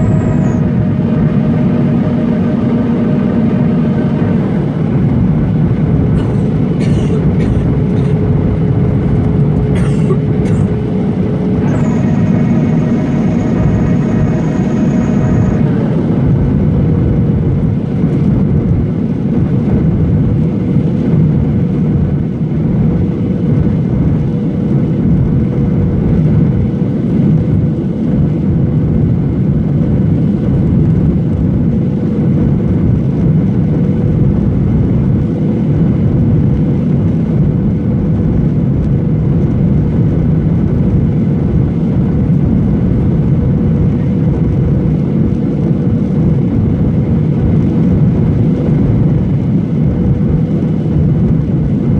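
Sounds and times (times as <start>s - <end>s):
steady hum: 0.0s - 18.0s
aircraft cabin engine rush: 0.0s - 51.9s.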